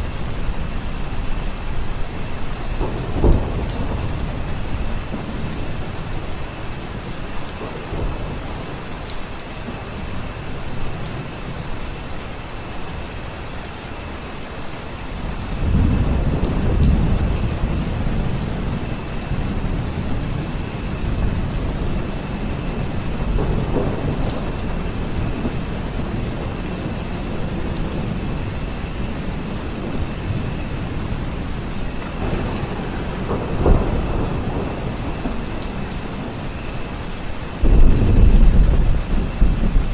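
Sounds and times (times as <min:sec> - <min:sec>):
heavy rain: 0:00.0 - 0:39.9
rolling thunder: 0:02.7 - 0:08.8, 0:15.5 - 0:36.8, 0:37.6 - 0:39.9.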